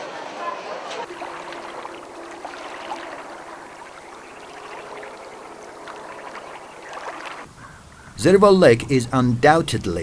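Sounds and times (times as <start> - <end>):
water running: 1.1 - 8.3.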